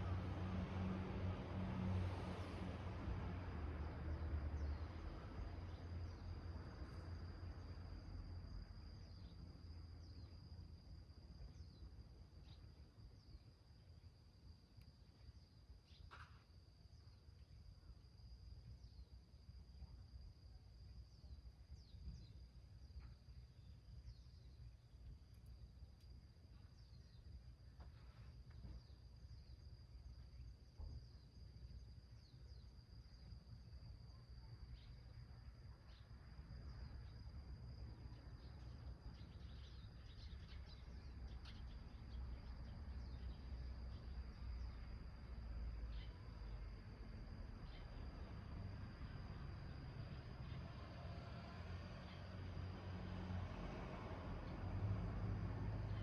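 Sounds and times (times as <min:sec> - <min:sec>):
high-pitched insect trill: 0:28.4 - 0:53.4.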